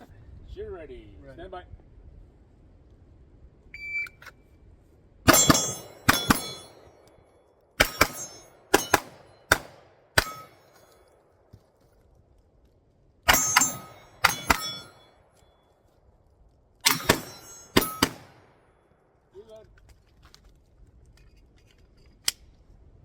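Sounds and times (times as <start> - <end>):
shot timer beep: 3.8 - 4.2
pistol shots: 5.3 - 6.8, 7.8 - 10.7, 13.3 - 15.1, 16.8 - 18.6
steel targets ringing: 5.3 - 7.0, 7.8 - 11.1, 13.3 - 15.6, 16.8 - 18.4.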